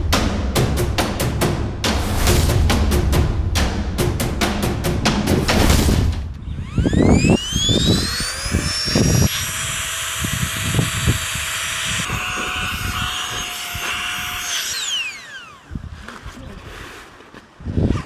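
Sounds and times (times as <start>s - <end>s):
small electric motor whining: 6.6s - 16.1s.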